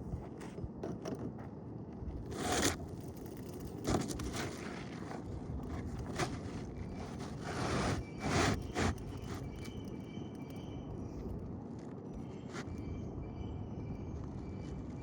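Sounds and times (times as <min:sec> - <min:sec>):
roof shingles scraping and rustling: 0:02.3 - 0:09.8.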